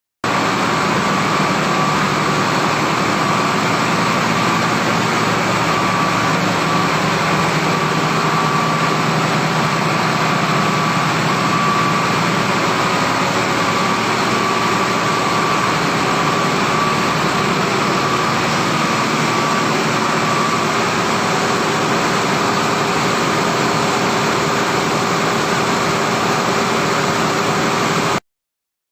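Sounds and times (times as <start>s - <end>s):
pump engine din with whine: 0.3s - 28.2s.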